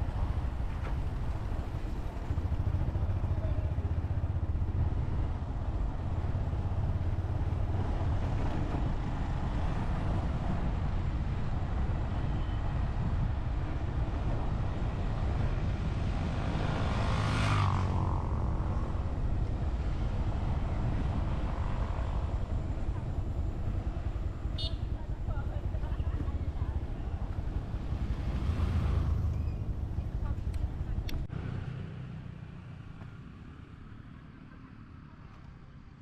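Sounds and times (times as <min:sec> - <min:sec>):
motorcycle engine and road rumble: 0:00.0 - 0:36.0
vehicle passing whoosh: 0:15.6 - 0:22.3, 0:27.6 - 0:30.0.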